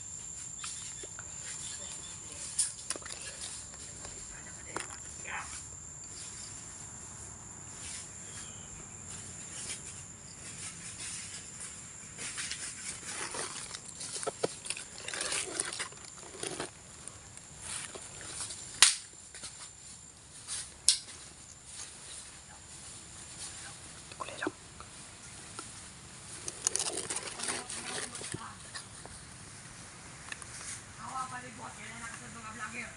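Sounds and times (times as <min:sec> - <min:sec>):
thin high insect whine: 0:00.0 - 0:32.9
rustling through dry leaves: 0:07.7 - 0:18.8
sharp cracks: 0:18.7 - 0:19.2.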